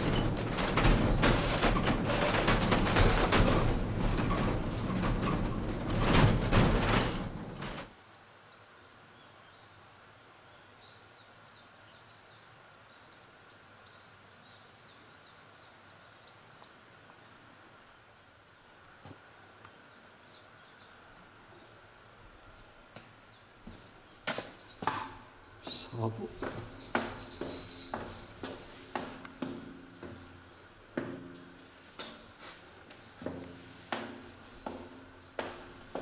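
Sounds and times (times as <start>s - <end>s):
loud knocks: 0.0s - 7.9s
songbird chirping: 7.4s - 36.0s.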